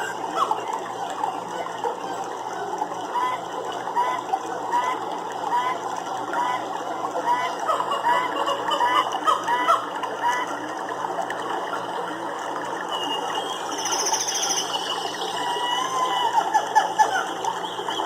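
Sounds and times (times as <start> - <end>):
short chirping calls: 12.9 - 15.5.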